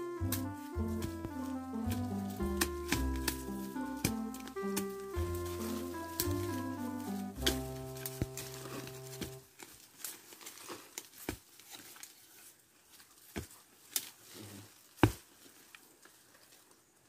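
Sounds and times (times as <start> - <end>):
background music: 0.0 - 9.4
rustling of soil and leaves: 0.0 - 17.0
digging tool chopping into earth: 0.2 - 1.2, 1.8 - 6.5.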